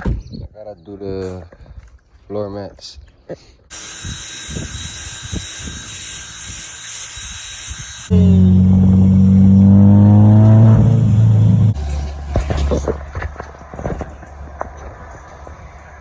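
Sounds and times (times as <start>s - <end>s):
steady hiss: 3.7s - 8.2s
low rumble: 8.1s - 13.0s
car engine drone: 8.1s - 16.0s.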